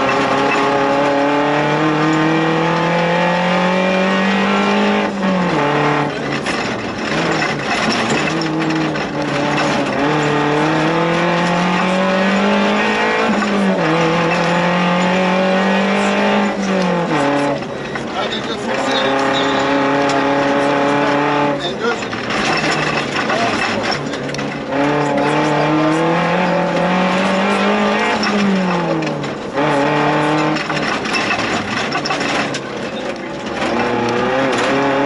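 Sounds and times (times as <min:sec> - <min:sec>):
car engine revving from inside cabin: 0:00.0 - 0:06.1, 0:08.3 - 0:17.6, 0:24.7 - 0:30.7.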